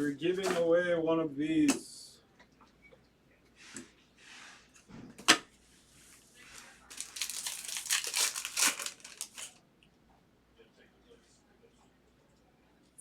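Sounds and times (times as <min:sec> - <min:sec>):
foil wrapper crinkling: 0:06.6 - 0:09.6.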